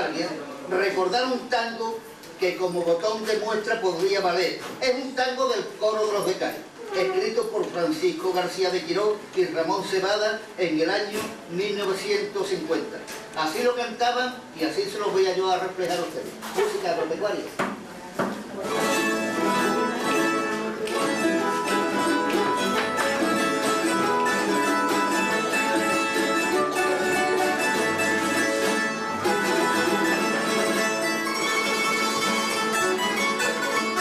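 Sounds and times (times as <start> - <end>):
plucked string instruments: 18.6 - 34.0
strummed guitar: 18.6 - 34.0.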